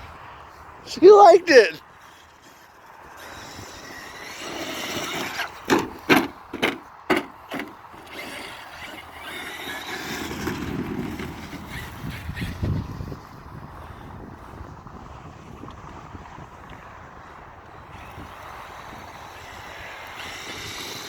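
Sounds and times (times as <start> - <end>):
electric motor whine: 2.0 - 13.0, 17.7 - 21.0.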